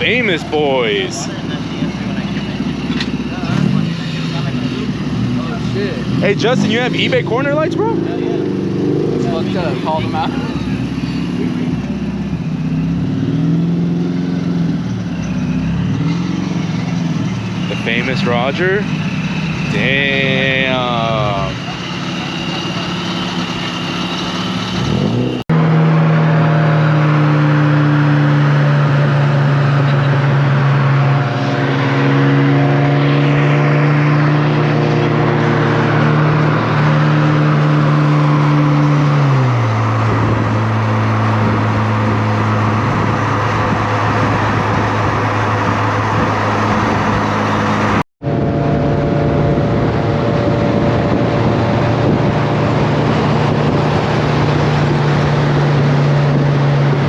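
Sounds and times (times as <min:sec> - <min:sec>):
car engine hum: 0:00.0 - 0:57.0
road and wind noise: 0:00.0 - 0:57.0.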